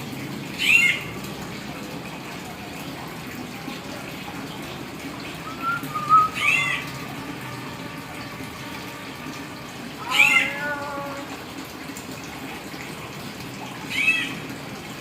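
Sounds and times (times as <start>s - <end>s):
myna whistled calls: 5.5s - 6.8s.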